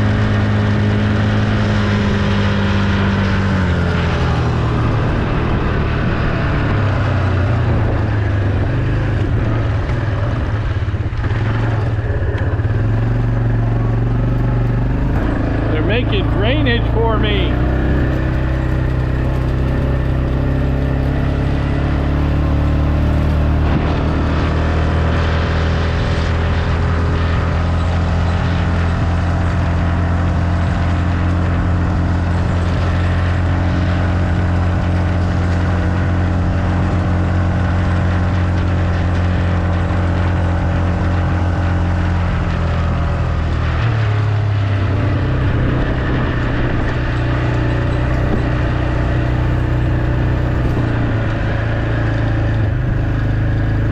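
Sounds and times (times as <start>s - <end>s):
road noise: 0.0s - 53.9s
vehicle engine: 0.0s - 53.9s.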